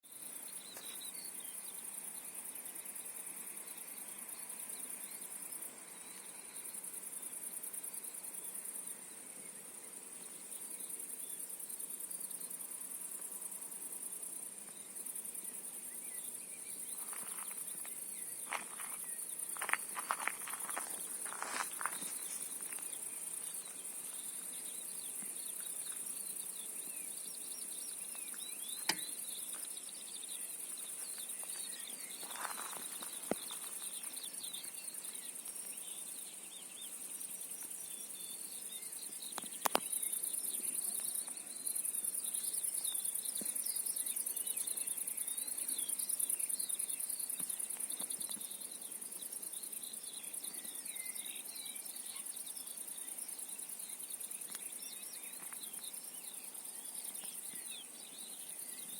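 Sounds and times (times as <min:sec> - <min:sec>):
short lower insect chirps: 0:15.5 - 0:36.2
high cricket trill: 0:17.0 - 0:24.9, 0:30.4 - 0:34.8.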